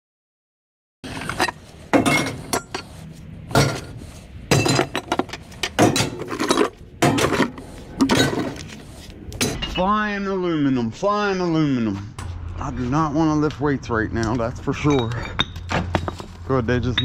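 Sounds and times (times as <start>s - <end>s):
scrap metal clanking onto pile: 3.5s - 8.6s.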